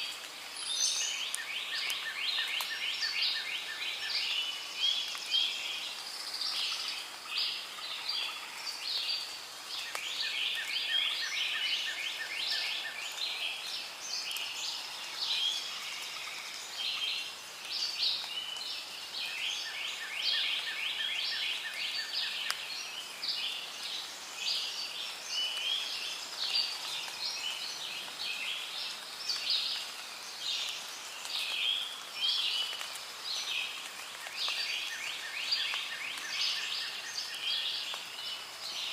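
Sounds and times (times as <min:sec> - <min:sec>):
chorus of chirping birds and creatures: 0:00.0 - 0:38.9.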